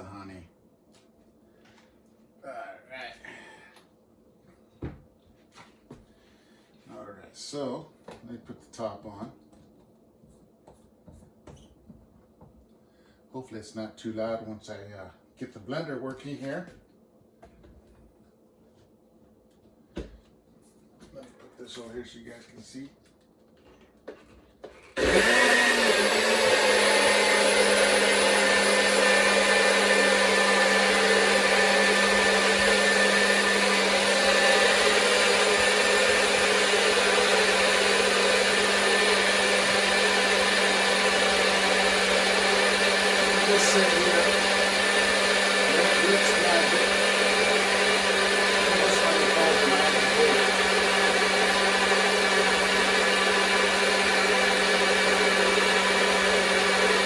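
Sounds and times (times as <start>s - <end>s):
blender motor whirring: 24.7s - 57.0s.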